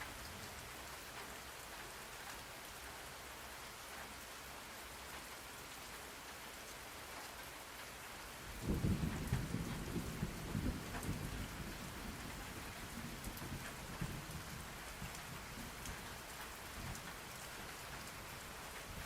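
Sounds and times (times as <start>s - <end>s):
steady rainfall: 0.0s - 19.0s
distant thunder rumble: 8.5s - 15.8s.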